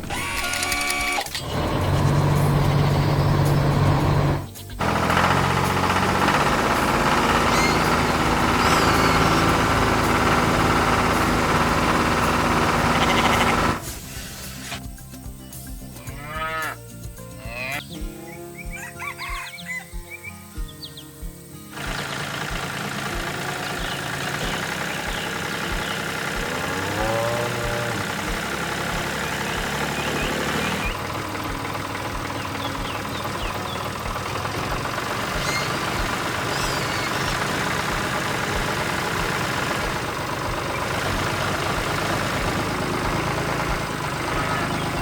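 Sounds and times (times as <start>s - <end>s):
birds chirping: 0.0s - 14.8s, 15.6s - 45.0s
knocking engine running: 0.0s - 15.1s, 21.7s - 45.0s
cow mooing: 12.8s - 13.8s, 16.0s - 16.8s, 26.4s - 28.3s.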